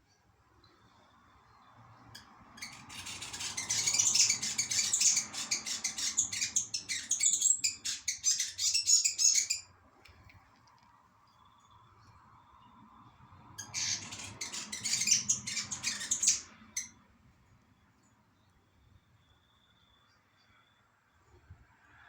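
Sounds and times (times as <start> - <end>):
bird chirping fast high chirps: 2.2 - 9.6, 13.6 - 17.0.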